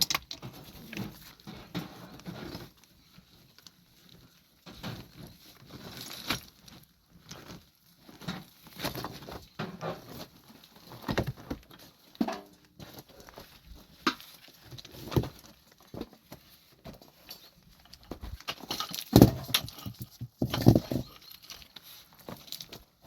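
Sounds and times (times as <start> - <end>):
knocks and thuds: 19.1 - 21.1.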